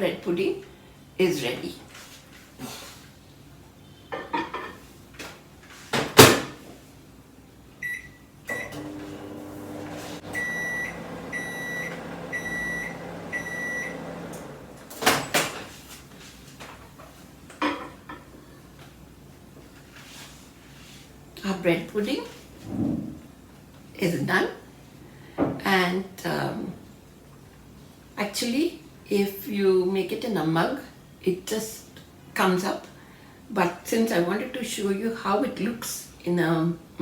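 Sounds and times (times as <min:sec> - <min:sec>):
microwave end beeps: 0:07.8 - 0:14.8
microwave oven humming: 0:07.8 - 0:15.4.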